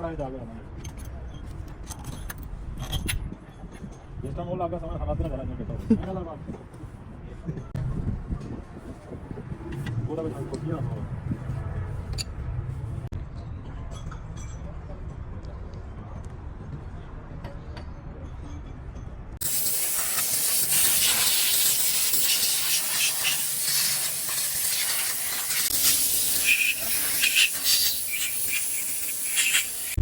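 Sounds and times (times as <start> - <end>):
low rumble: 7.6 - 14.0
pressurised gas jet hissing: 19.4 - 30.0.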